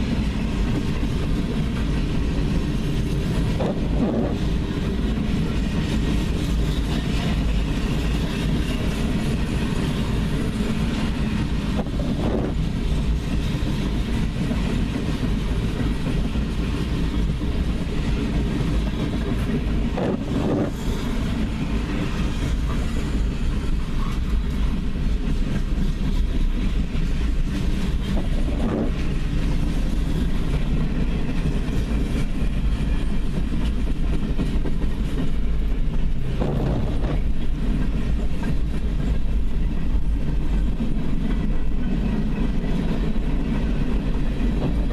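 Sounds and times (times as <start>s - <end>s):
freight train rumbling past: 0.0s - 44.9s
train wheels clickety-clack: 0.0s - 44.9s.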